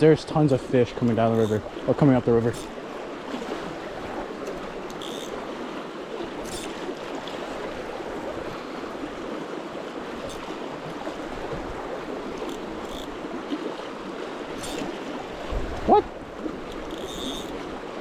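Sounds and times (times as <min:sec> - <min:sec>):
river water rushing: 0:00.0 - 0:18.0
faint ticks: 0:04.4 - 0:05.4, 0:12.4 - 0:13.2, 0:14.6 - 0:14.9, 0:16.7 - 0:17.6.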